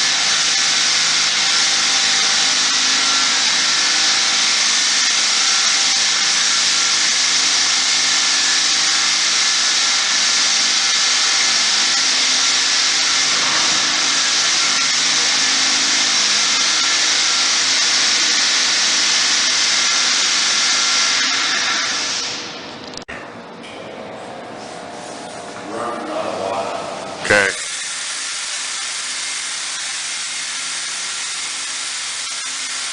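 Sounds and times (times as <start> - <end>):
mist sprayer hissing: 27.3 - 32.9.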